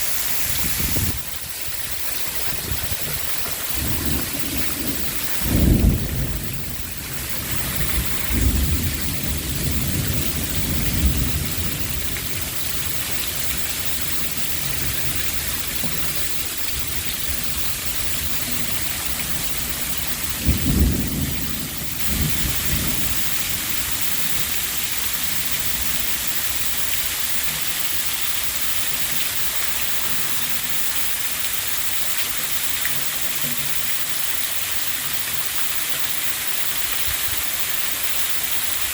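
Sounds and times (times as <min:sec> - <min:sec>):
torrential rain: 0:00.0 - 0:38.9
thunder rumbling: 0:00.2 - 0:27.7.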